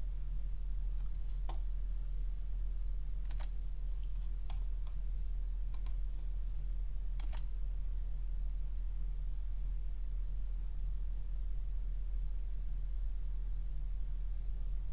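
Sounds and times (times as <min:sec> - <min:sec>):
faint high whine: 0:00.0 - 0:14.9
low hum: 0:00.0 - 0:14.9
mouse and keyboard clicks: 0:01.0 - 0:01.6, 0:03.2 - 0:05.0, 0:05.7 - 0:06.0, 0:07.2 - 0:07.5.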